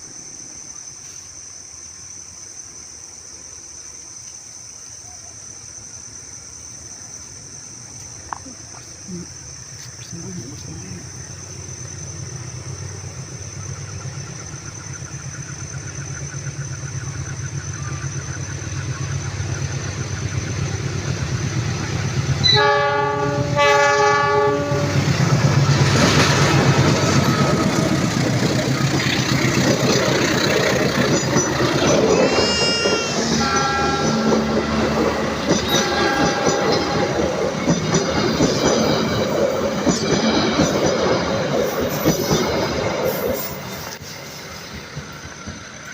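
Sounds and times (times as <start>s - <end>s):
passenger train rumbling: 4.7s - 45.9s
train horn blasts: 22.4s - 25.0s, 32.1s - 34.9s, 35.7s - 37.4s
wheel squeals: 25.8s - 40.8s.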